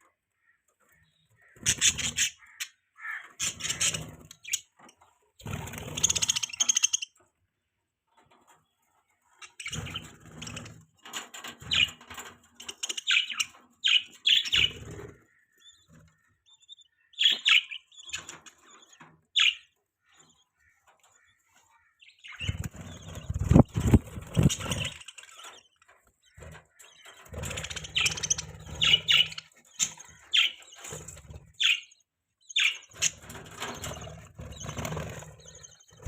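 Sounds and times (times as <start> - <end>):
budgerigars chirping: 0.9 - 7.2, 9.2 - 10.8, 11.6 - 36.0
wings flapping: 5.4 - 6.8, 22.4 - 25.3, 27.2 - 31.8, 32.9 - 36.0.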